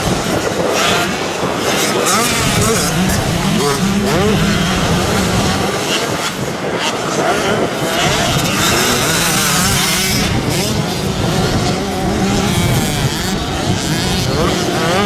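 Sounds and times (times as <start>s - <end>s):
motocross bikes revving: 0.0s - 15.0s.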